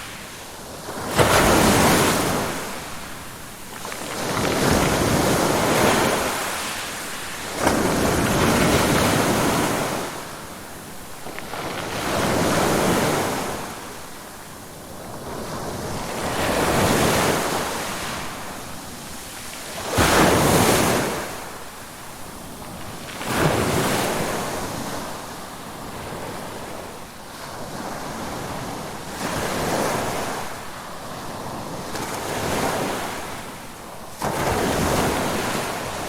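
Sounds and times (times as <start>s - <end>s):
waves crashing: 0.0s - 14.2s, 31.4s - 36.0s
ocean waves: 0.0s - 36.0s.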